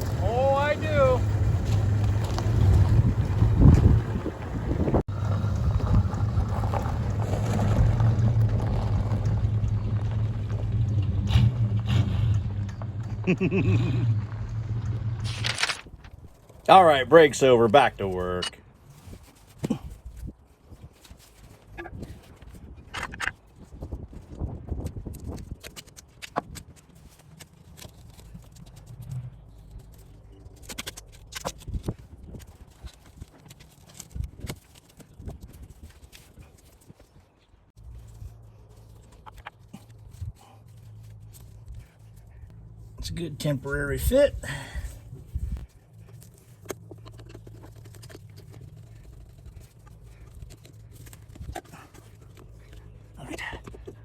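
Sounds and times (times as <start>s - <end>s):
low rumble: 0.0s - 16.6s, 37.7s - 54.0s
engine humming: 0.0s - 18.5s, 37.7s - 54.0s.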